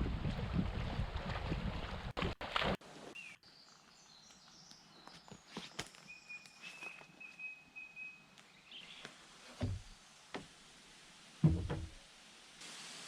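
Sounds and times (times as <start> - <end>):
dull thuds outdoors: 9.6 - 10.5, 11.4 - 12.1.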